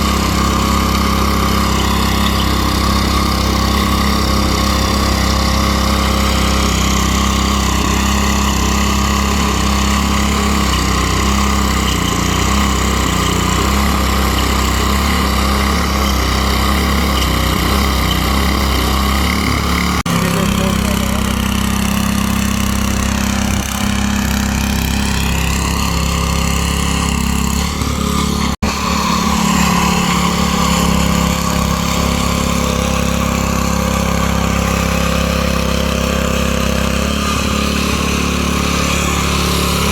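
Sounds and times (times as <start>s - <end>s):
small gasoline engine running: 0.0s - 39.9s.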